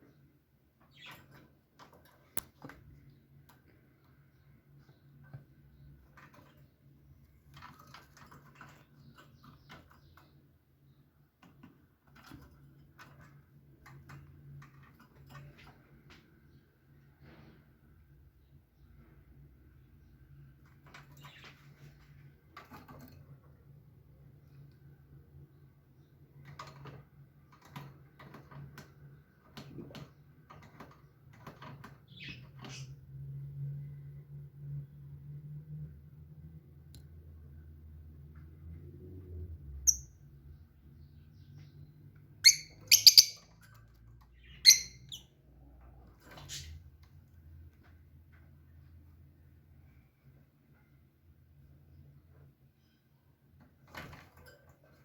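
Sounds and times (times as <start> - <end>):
light clicks and scratches: 0.0 - 17.9, 20.0 - 33.1.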